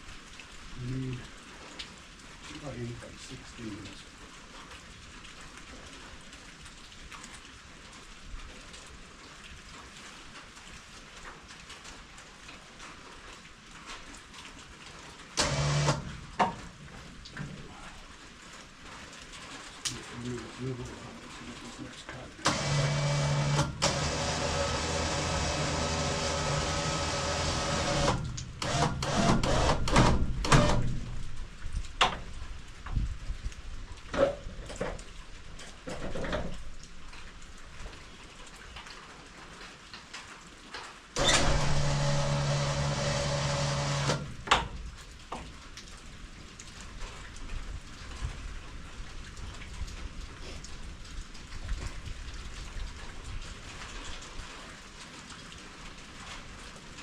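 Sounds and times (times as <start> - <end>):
light ticks: 19.8 - 20.0
small motor running: 22.5 - 30.0, 41.2 - 44.3
knocks of wood and metal: 44.4 - 45.5.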